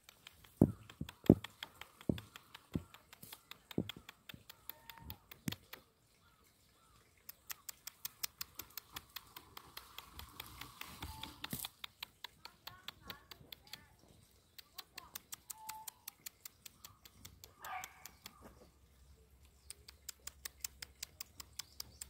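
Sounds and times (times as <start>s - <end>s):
porcupine quills rattling: 0.0s - 22.0s
heavy thumps: 0.6s - 1.5s.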